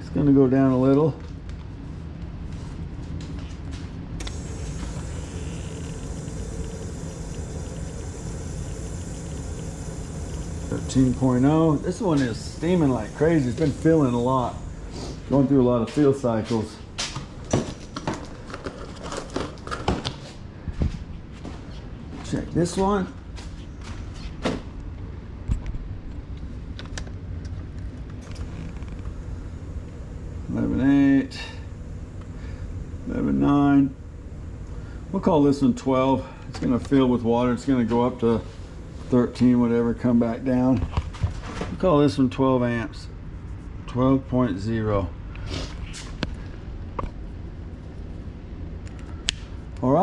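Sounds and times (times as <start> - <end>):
low machine hum: 0.0 - 19.8, 20.5 - 50.0
water boiling low rumble: 4.2 - 17.0, 28.2 - 43.0
steam hissing: 4.2 - 17.5, 28.2 - 41.6.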